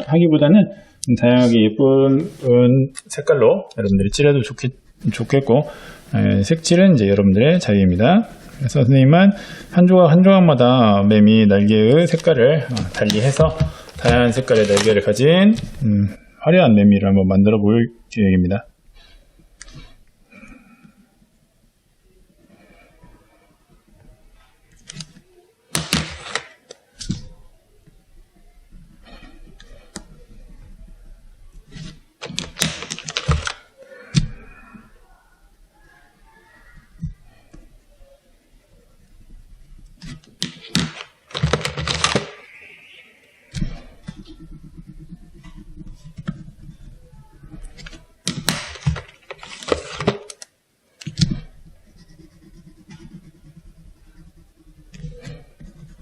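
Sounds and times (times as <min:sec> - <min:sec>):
paper rustling: 0:12.0 - 0:15.8, 0:24.4 - 0:27.3, 0:31.5 - 0:33.7, 0:39.9 - 0:42.6, 0:43.5 - 0:56.0
pencil scratching on paper: 0:12.9 - 0:15.0, 0:31.6 - 0:33.5, 0:43.5 - 0:50.0, 0:51.1 - 0:56.0.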